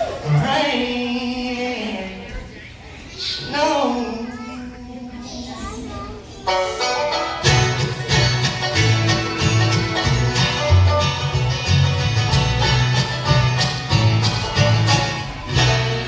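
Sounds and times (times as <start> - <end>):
banjo picking: 6.5 - 16.0
guitar picking: 6.5 - 16.0
bass notes: 6.7 - 16.0.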